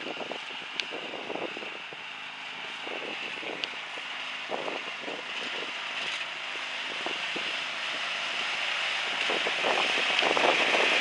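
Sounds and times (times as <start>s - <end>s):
wind on microphone: 0.0s - 2.0s, 2.8s - 3.8s, 4.5s - 5.8s, 6.8s - 7.6s, 8.3s - 11.0s
lawn mower engine running: 0.0s - 11.0s.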